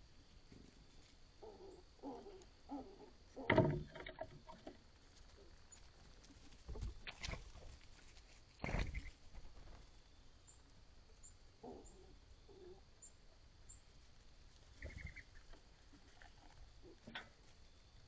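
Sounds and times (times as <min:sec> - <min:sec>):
dove cooing: 0:01.4 - 0:04.6, 0:11.6 - 0:12.9, 0:14.8 - 0:17.3
thump with rustle: 0:03.5 - 0:04.7, 0:08.6 - 0:09.8.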